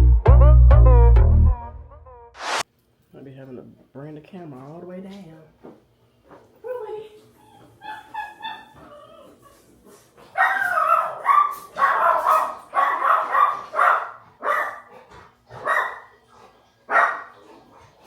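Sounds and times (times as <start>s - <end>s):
dog whining: 7.4s - 9.7s
dog barking: 10.3s - 16.2s, 16.9s - 17.4s.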